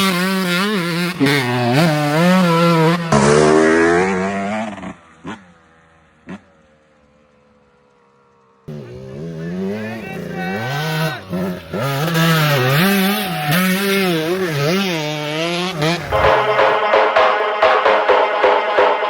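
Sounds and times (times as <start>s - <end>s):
motocross bike engine revving: 0.0s - 6.6s, 8.7s - 16.9s
music: 16.0s - 19.0s.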